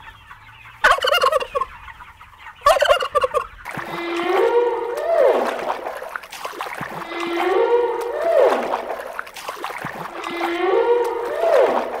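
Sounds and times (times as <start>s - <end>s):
whale calls: 3.9s - 5.8s, 7.0s - 9.1s, 10.1s - 12.0s.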